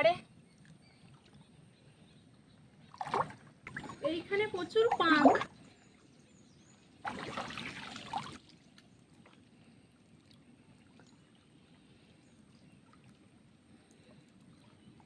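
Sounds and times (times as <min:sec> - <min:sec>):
loud water splash: 0:07.0 - 0:08.4
net sloshing through mud: 0:07.0 - 0:08.5.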